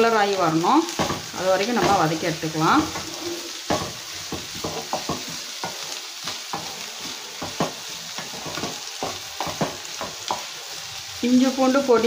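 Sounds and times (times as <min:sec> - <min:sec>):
onions sizzling in a pan: 0:00.0 - 0:12.0
wooden spatula knocking and scraping pan: 0:00.9 - 0:10.8.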